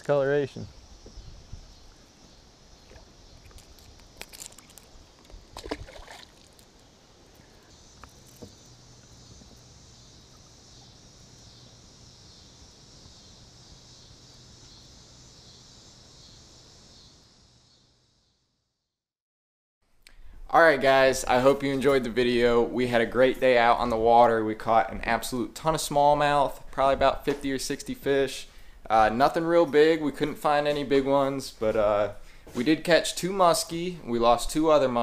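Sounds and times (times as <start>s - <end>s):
water splashes: 5.5s - 6.8s.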